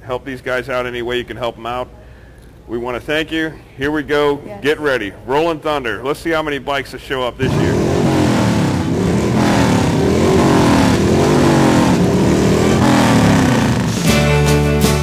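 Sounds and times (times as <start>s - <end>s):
motorcycle engines revving: 7.4s - 14.2s
country guitar music: 12.0s - 15.0s.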